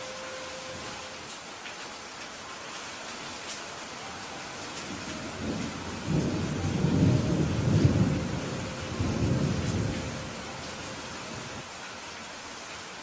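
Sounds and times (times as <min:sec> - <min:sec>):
rain falling: 0:00.0 - 0:13.0
thunder rumbling: 0:04.6 - 0:11.6.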